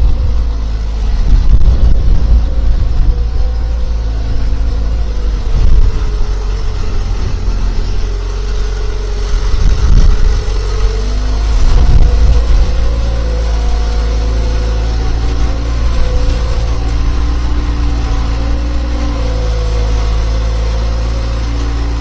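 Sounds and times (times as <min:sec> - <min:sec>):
skid steer engine running: 0:00.0 - 0:22.0.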